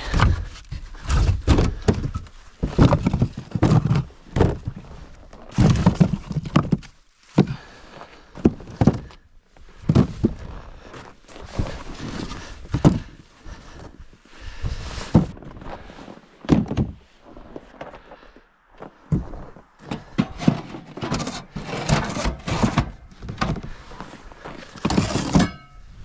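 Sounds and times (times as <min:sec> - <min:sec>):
cargo thudding on wood wagon: 0:00.0 - 0:04.9, 0:05.5 - 0:07.8, 0:08.4 - 0:09.2, 0:09.8 - 0:10.6, 0:11.5 - 0:13.2, 0:14.6 - 0:15.5, 0:16.4 - 0:17.0, 0:19.1 - 0:23.8, 0:24.6 - 0:25.7.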